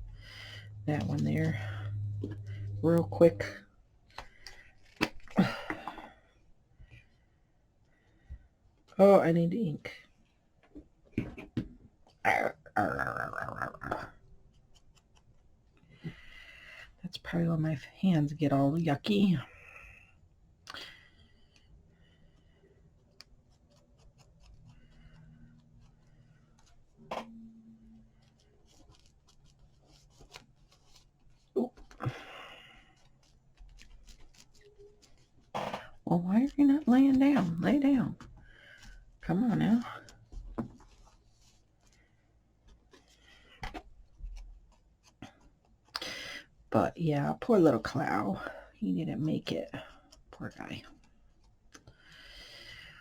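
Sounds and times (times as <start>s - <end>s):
paper rubbing and rustling: 28.0s - 32.0s, 32.7s - 35.5s, 40.0s - 45.9s.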